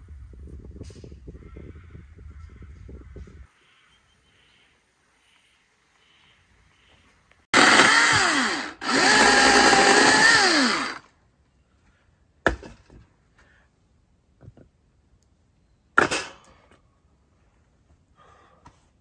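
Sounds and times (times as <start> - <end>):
small motor spinning up and down: 7.6 - 11.0.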